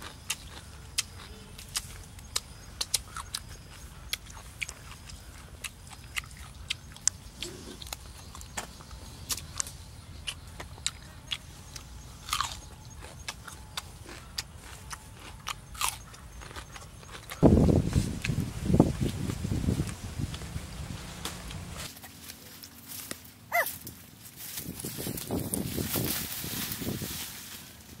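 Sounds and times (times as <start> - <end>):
crunchy chewing and lip smacks: 0.0 - 17.5.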